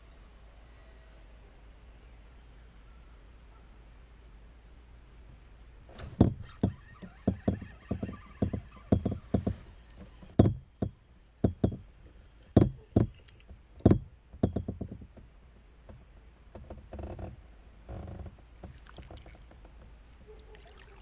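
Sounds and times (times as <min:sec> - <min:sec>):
knocks on kayak hull: 0:10.3 - 0:11.8, 0:12.6 - 0:13.2, 0:13.8 - 0:15.1.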